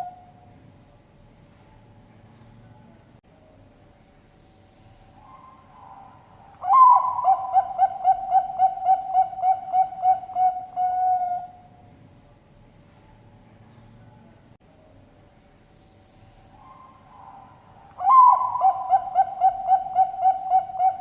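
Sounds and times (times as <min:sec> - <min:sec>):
dove cooing: 0:00.0 - 0:00.3, 0:05.2 - 0:11.7, 0:16.6 - 0:21.0.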